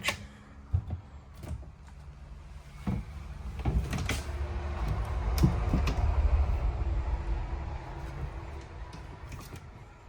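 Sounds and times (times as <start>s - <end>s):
low rumble: 4.4s - 9.3s.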